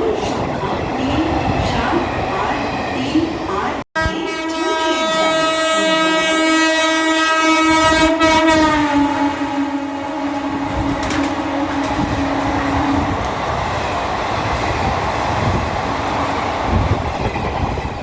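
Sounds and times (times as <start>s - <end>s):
high-speed train rushing past: 0.0s - 18.0s
low train horn: 4.0s - 13.3s
wheels knocking over rail joints: 10.2s - 15.6s.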